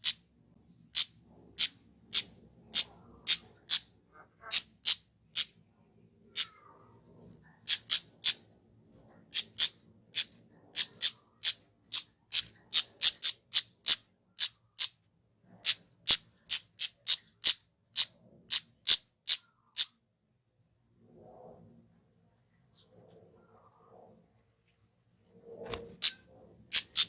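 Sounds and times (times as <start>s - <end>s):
bird high-pitched call notes: 4.4s - 5.5s, 7.7s - 8.4s, 26.0s - 27.0s.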